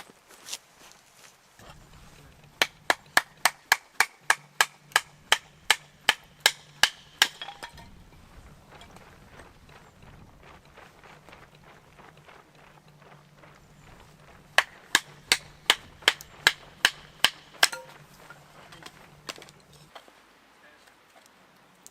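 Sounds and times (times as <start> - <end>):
hammer strikes on metal: 2.6 - 7.8, 14.6 - 18.1.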